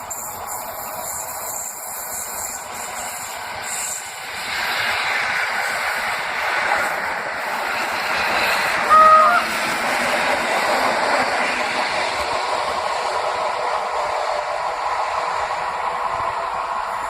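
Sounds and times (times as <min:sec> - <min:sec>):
train wheels rumbling on rails: 0:00.0 - 0:17.0
train horn toot: 0:08.8 - 0:09.6.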